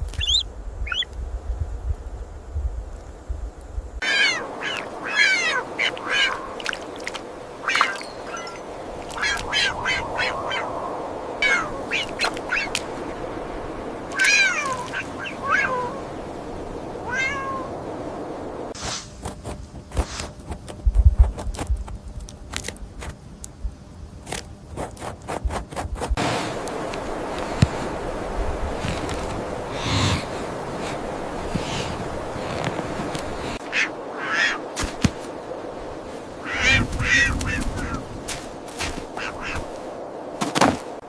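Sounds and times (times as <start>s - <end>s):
high animal calls: 0.2s - 1.1s, 4.0s - 7.0s, 7.6s - 10.8s, 11.4s - 12.8s, 14.1s - 16.1s, 33.6s - 34.7s, 36.4s - 38.1s, 39.1s - 39.7s.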